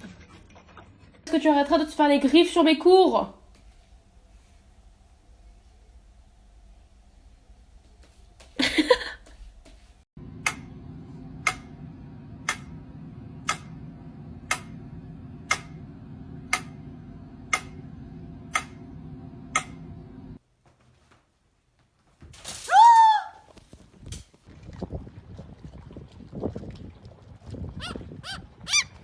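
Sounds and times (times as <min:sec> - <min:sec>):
steady low hum: 0:03.4 - 0:20.5.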